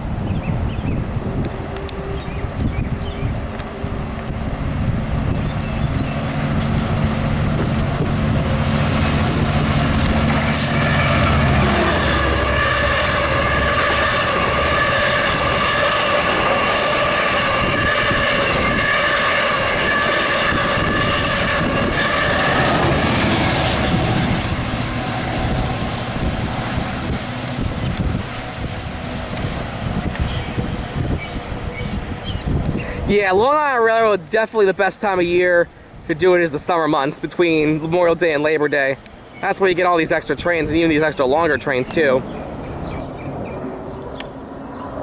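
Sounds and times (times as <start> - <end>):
train whine in several tones: 0.0 - 33.4
train rumble: 0.0 - 45.0.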